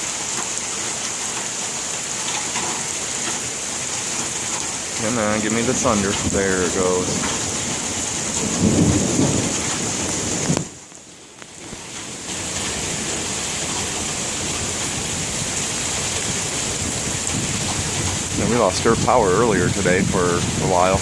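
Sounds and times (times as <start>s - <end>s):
steady rain: 0.0s - 21.0s
thunder rolling: 5.0s - 10.8s, 13.9s - 21.0s.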